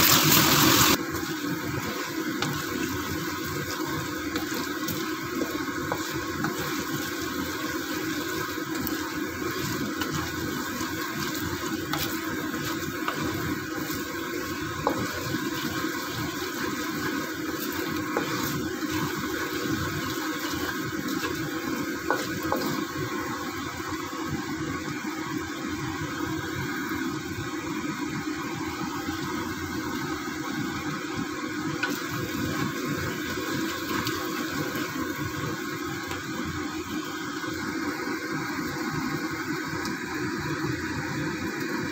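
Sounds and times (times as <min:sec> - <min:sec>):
coconut milk bubbling in pan: 0:00.0 - 0:27.4.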